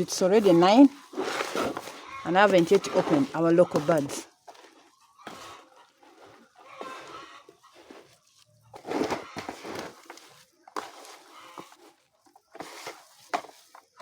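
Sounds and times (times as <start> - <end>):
loud rustling: 0.0 - 11.6
chickens clucking: 0.2 - 9.9, 11.2 - 11.8.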